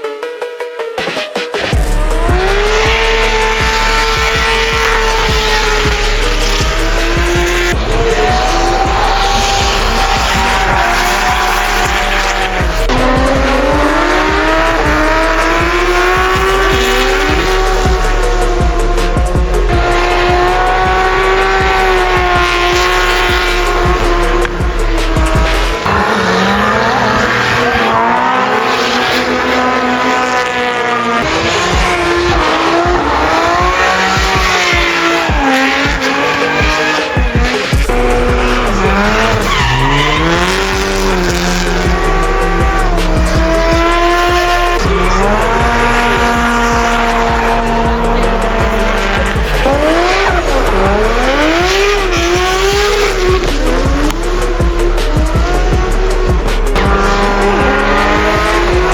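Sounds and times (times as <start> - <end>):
car engines revving: 0.0 - 58.9
tyres squealing: 19.9 - 58.9.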